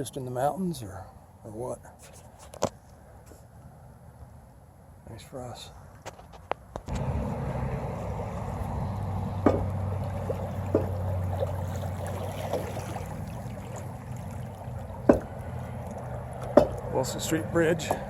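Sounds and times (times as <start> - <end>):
river water gurgling: 6.9 - 18.0
sharp knocks: 9.4 - 9.8, 10.7 - 11.0, 15.0 - 15.4, 16.4 - 16.9.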